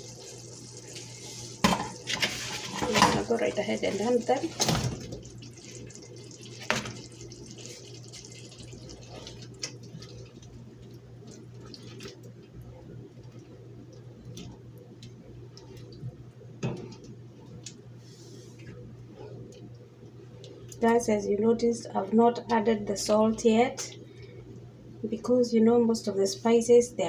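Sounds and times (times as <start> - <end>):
steady low hum: 0.0 - 27.0
stew simmering with pops: 4.0 - 17.9.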